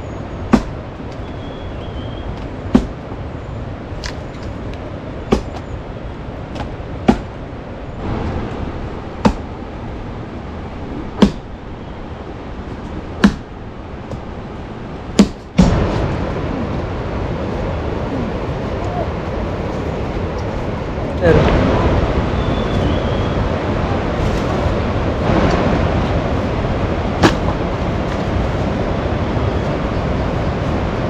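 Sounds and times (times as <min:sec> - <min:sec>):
loud rush of noise: 0:00.0 - 0:31.0
steady background hiss: 0:00.0 - 0:31.0
sharp knocks: 0:00.5 - 0:00.8, 0:02.7 - 0:03.0, 0:05.3 - 0:05.6, 0:06.5 - 0:07.4, 0:09.2 - 0:09.5, 0:11.2 - 0:11.5, 0:13.2 - 0:13.5, 0:15.2 - 0:16.0, 0:27.2 - 0:27.6.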